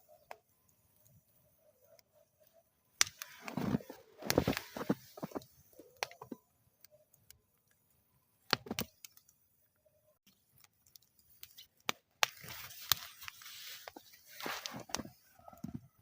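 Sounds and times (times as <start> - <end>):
wood fire crackling: 0.0 - 16.0
sharp pops and snaps: 3.0 - 6.4, 8.4 - 9.4, 10.3 - 15.8.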